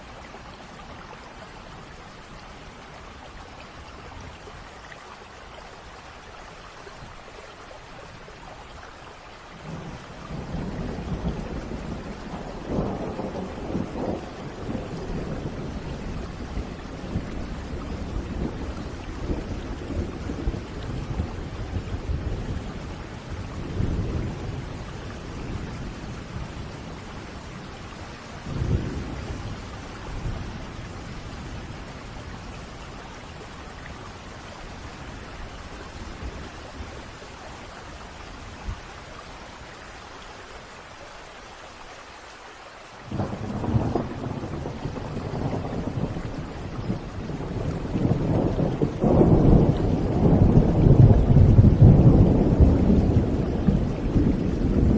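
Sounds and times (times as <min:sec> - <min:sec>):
steady rain: 0:00.0 - 0:54.9
thunder rumbling: 0:09.6 - 0:35.2, 0:43.1 - 0:54.9
loud thunder peal: 0:43.1 - 0:54.9.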